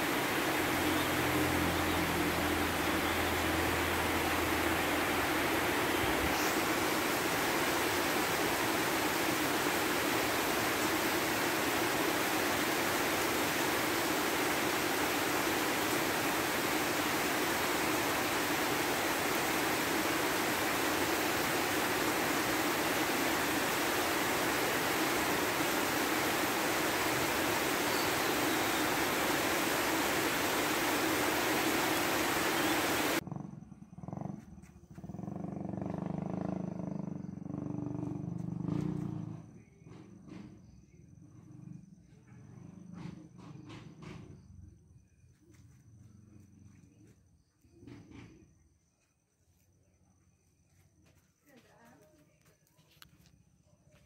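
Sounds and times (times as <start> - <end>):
steady rain on pavement: 0.0 - 33.2.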